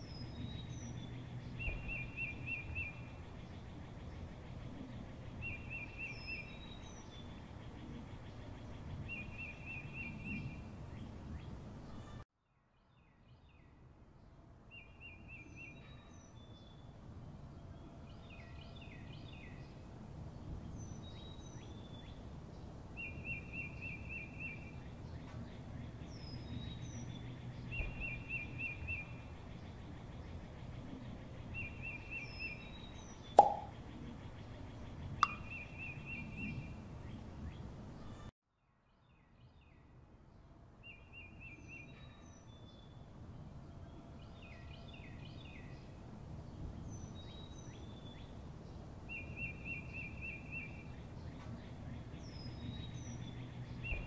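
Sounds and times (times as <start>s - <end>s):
thin high bird chirps: 33.2s - 33.8s, 35.2s - 36.6s
bird trilling: 35.2s - 35.6s.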